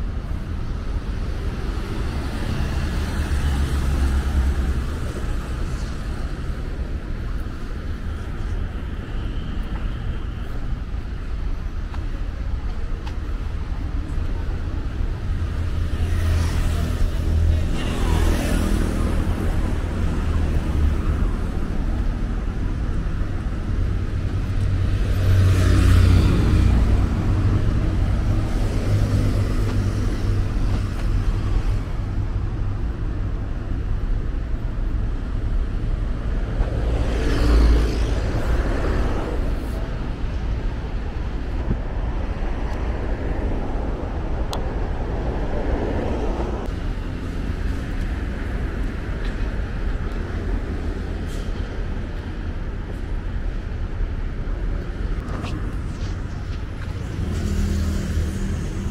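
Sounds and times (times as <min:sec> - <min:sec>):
highway traffic rumble: 0:00.0 - 0:58.9
vehicles passing close: 0:00.0 - 0:58.9.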